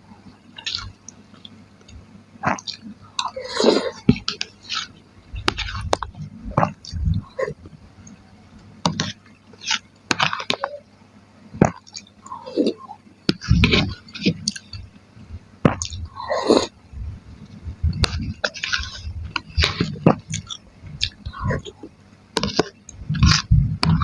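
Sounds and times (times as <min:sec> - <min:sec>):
wet chewing and biting: 0:17.8 - 0:24.0.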